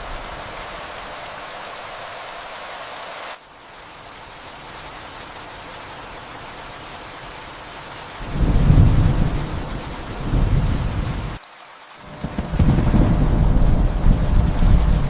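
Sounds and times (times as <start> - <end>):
steady rain: 0.0 - 15.0
thunder rumbling: 8.2 - 11.4, 12.0 - 15.0.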